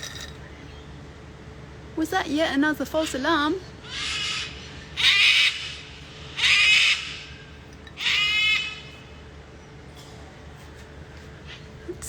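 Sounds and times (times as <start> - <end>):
cockatoo screeching: 3.8 - 9.0.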